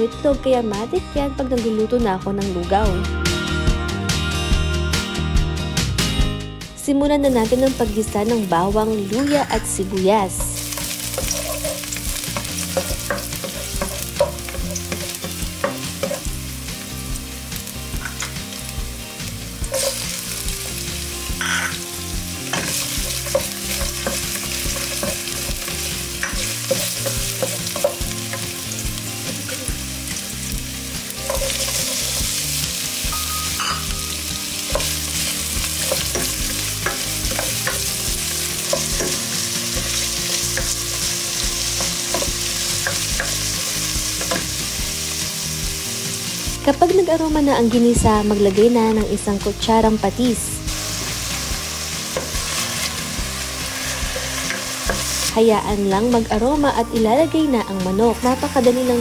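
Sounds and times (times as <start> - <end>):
food sizzling in hot oil: 7.2 - 59.0
spatula clicking and scraping: 10.5 - 16.3, 22.4 - 28.6, 31.1 - 32.4, 34.7 - 43.5.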